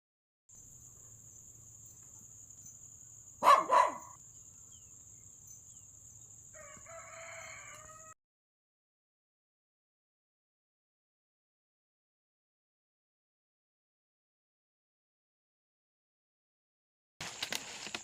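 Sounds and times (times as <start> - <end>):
rooster and chickens calling: 6.4 - 8.2.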